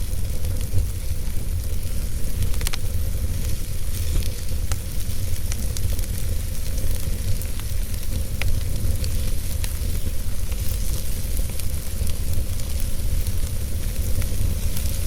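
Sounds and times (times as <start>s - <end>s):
wood fire burning: 0.0s - 15.0s.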